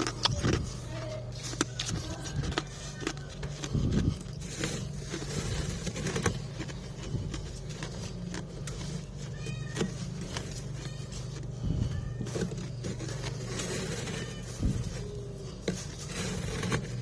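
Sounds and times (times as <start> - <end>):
crunching of frost being chewed: 0.0 - 17.0
steady low hum: 0.0 - 17.0
cat meowing: 9.2 - 12.8.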